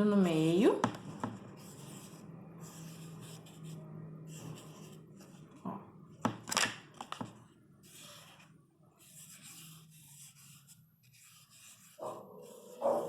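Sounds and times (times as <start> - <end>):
scratchy rubbing on cardboard: 7.8 - 13.0.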